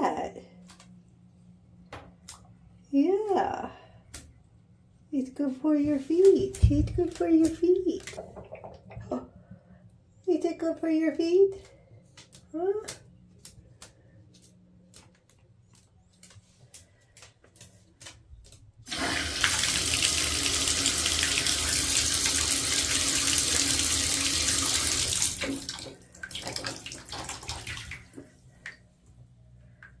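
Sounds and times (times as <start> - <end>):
water drips and splashes: 6.5 - 9.1, 18.9 - 28.8
tap water running into sink: 6.6 - 9.2, 18.9 - 28.3.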